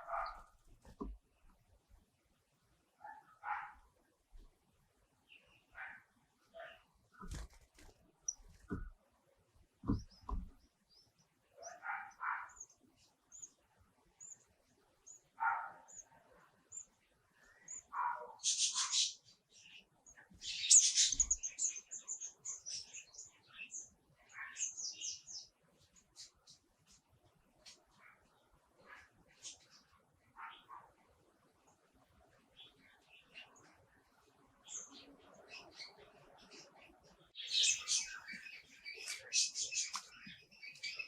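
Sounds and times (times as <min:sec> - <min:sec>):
small birds cheeping: 0:09.8 - 0:27.0, 0:27.6 - 0:31.0, 0:31.7 - 0:41.0
nestlings begging calls: 0:37.4 - 0:41.0.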